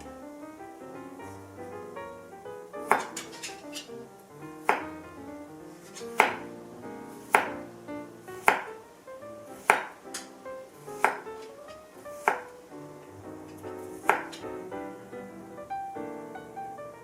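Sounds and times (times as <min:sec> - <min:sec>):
background music with held notes: 0:00.0 - 0:17.0
knife knocking on cutting board: 0:06.2 - 0:06.5, 0:11.0 - 0:11.2, 0:14.1 - 0:14.4.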